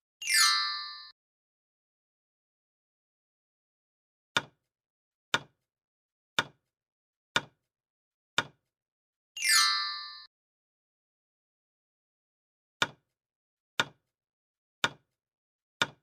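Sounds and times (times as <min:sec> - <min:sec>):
bright chime: 0:00.2 - 0:01.2, 0:09.4 - 0:10.3.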